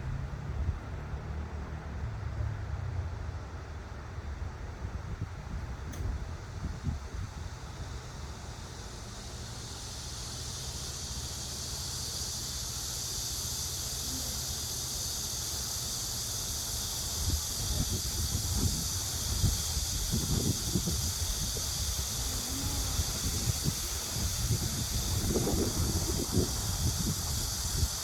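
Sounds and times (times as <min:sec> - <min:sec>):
wind rumble on microphone: 0:04.4 - 0:07.8, 0:16.9 - 0:28.0
fountain water spraying: 0:05.7 - 0:28.0.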